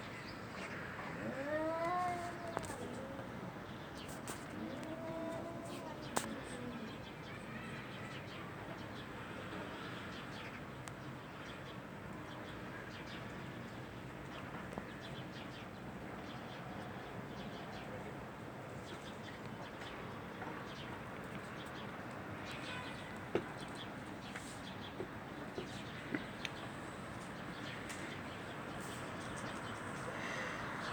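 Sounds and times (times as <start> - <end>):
cat yowling: 1.2 - 3.2, 4.6 - 6.7.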